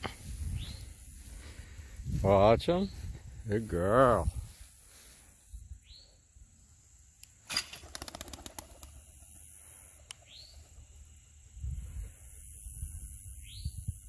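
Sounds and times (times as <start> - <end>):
bird chirps: 5.8 - 6.2, 10.2 - 10.8, 13.4 - 13.9.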